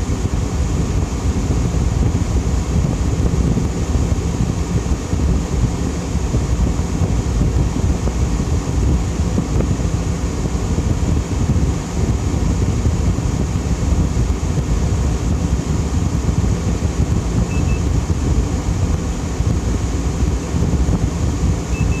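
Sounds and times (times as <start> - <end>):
air conditioner running: 0.0 - 22.0
short double beep: 17.5 - 17.9, 21.7 - 22.0.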